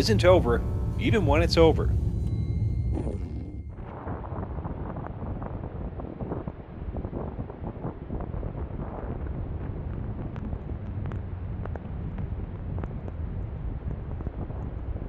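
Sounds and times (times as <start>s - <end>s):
wind buffeting microphone: 3.7s - 15.0s.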